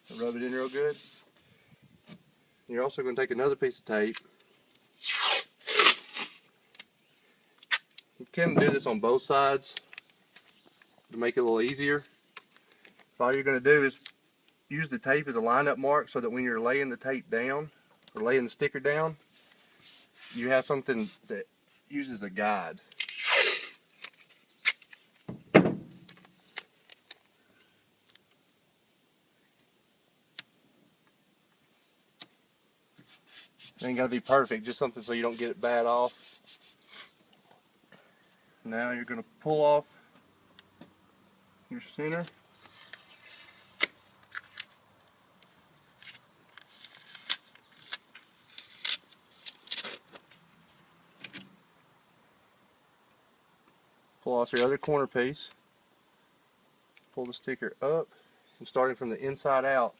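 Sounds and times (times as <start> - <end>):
tape ripping off a roll: 4.1 - 6.9, 7.6 - 8.1, 22.9 - 27.3, 42.1 - 44.8, 45.9 - 50.4.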